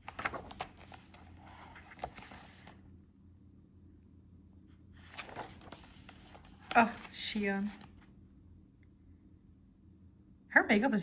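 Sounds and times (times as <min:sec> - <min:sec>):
photo cards rustling: 0:00.0 - 0:02.8, 0:05.0 - 0:08.2.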